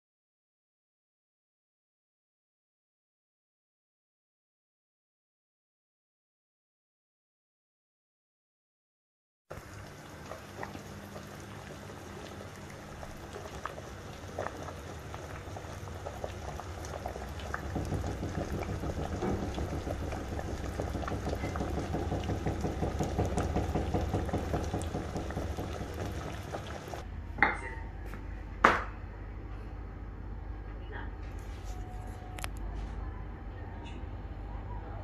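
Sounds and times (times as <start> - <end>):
water boiling in a pot: 9.5 - 27.1.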